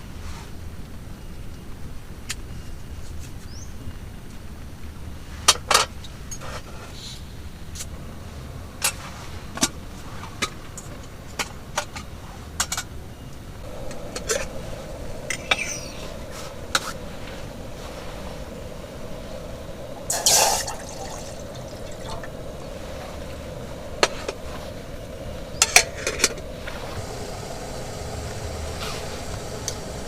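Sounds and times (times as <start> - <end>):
low background rumble: 6.1 - 30.0
steady hum: 7.4 - 30.0.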